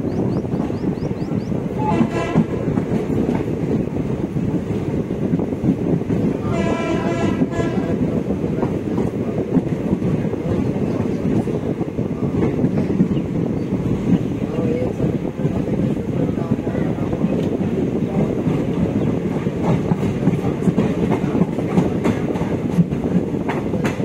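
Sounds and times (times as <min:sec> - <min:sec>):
train rumbling: 0:00.0 - 0:24.0
train horn blasts: 0:01.8 - 0:02.7, 0:06.4 - 0:08.1.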